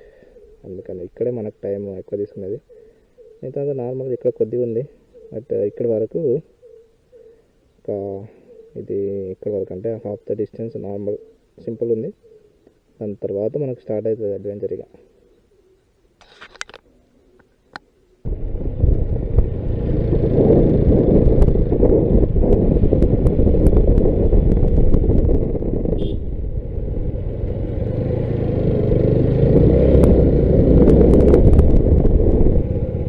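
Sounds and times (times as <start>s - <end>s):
motorcycle engine rumble: 18.2s - 33.0s.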